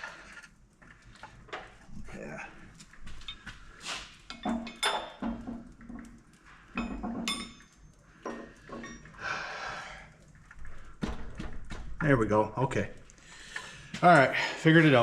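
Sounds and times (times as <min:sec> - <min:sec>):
metal tools clinking and scraping: 0:03.1 - 0:05.6, 0:06.7 - 0:09.2.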